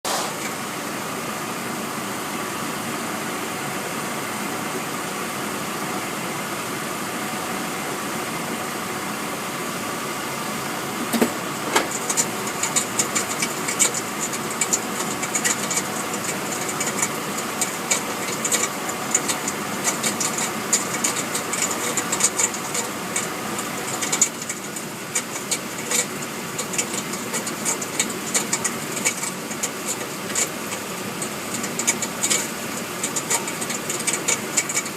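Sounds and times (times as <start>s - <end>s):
engine idling: 0.0s - 34.9s
rattle of sharp ticks: 11.8s - 34.9s.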